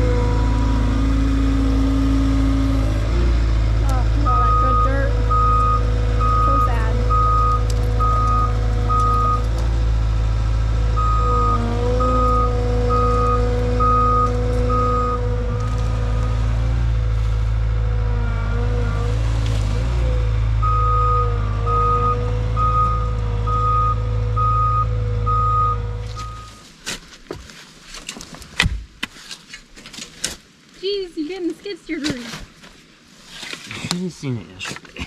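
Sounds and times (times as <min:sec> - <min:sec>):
skid steer engine under load: 0:00.0 - 0:26.6
reversing alarm beeping: 0:04.2 - 0:09.5, 0:10.9 - 0:15.9, 0:20.6 - 0:26.6.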